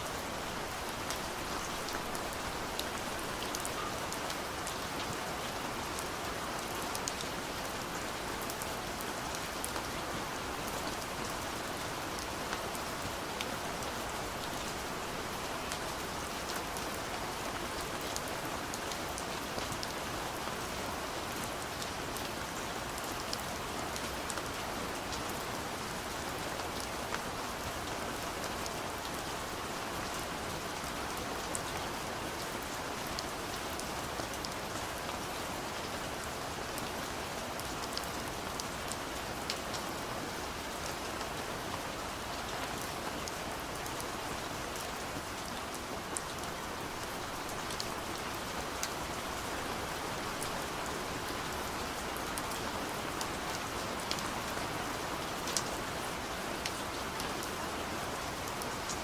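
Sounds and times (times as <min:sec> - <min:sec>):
gentle rain on a window: 0:00.0 - 0:59.0.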